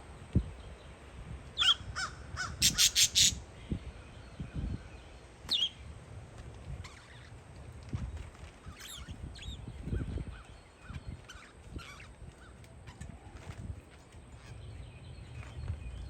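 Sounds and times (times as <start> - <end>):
wind buffeting microphone: 0.0 - 16.0
falling bird calls: 1.6 - 3.4.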